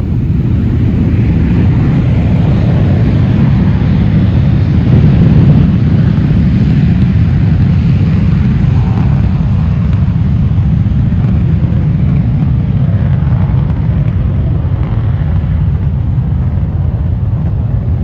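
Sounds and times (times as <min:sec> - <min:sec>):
jet engines at takeoff power: 0:00.0 - 0:18.0.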